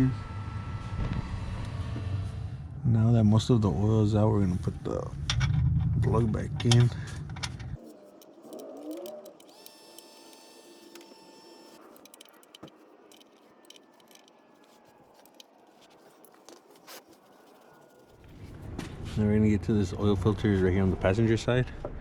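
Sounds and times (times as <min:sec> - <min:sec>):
metallic wrench clicks: 0:07.8 - 0:18.3
wrench scraping: 0:07.8 - 0:18.7.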